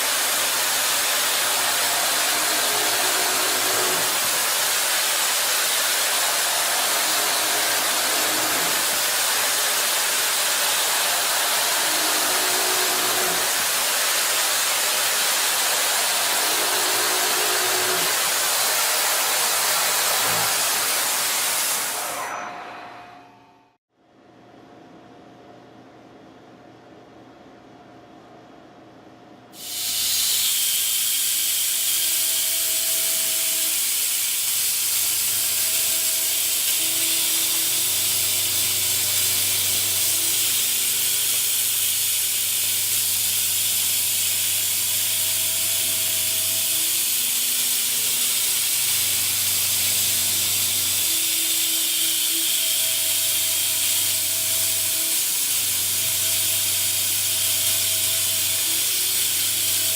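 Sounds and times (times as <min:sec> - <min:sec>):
machine hiss: 0:00.0 - 0:22.4, 0:29.6 - 0:59.9.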